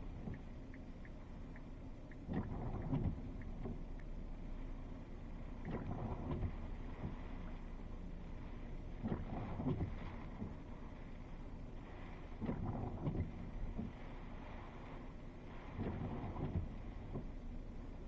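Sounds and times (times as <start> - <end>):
faint high ticks: 0.2 - 4.2.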